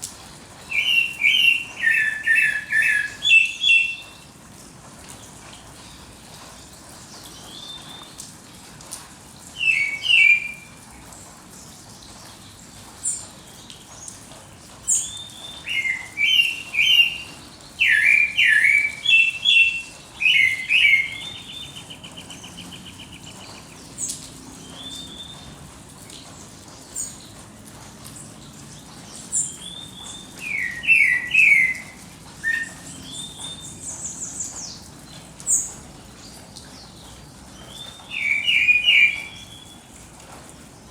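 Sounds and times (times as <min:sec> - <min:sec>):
bird trill: 0:00.7 - 0:04.2, 0:14.9 - 0:23.6, 0:29.6 - 0:34.1, 0:37.7 - 0:39.8
songbirds chirping: 0:00.7 - 0:04.5, 0:09.4 - 0:40.9.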